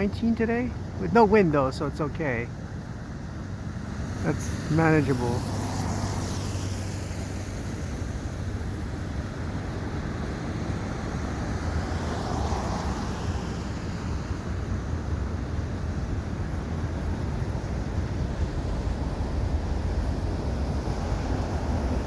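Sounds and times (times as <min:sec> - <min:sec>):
freight train wheels rumbling: 0:14.5 - 0:22.0.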